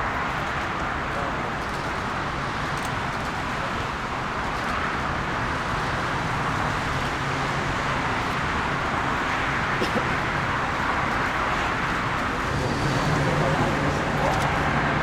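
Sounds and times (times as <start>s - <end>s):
jet engines roaring: 4.8s - 15.0s.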